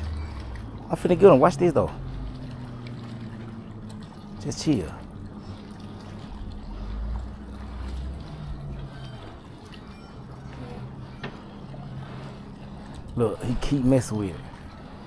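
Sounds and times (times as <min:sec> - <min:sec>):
faint water sounds: 0:00.0 - 0:15.0
motorboat engine hum: 0:00.0 - 0:15.0
deep low rumble: 0:06.2 - 0:11.2.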